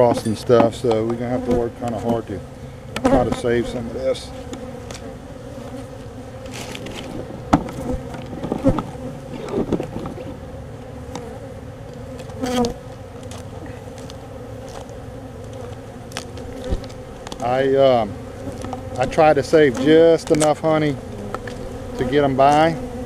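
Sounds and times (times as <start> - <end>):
bees buzzing: 0.0 - 23.0
knocks and handling noises: 6.5 - 10.3.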